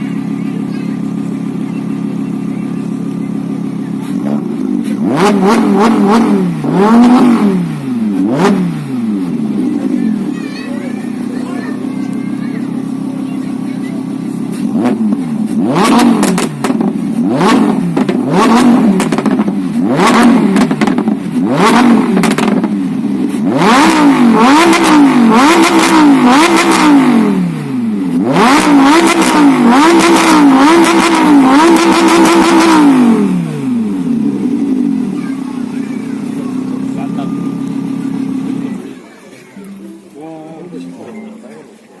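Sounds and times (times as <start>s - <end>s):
sports car engine revving: 0.0s - 39.1s
exhaust cracks: 11.1s - 40.2s.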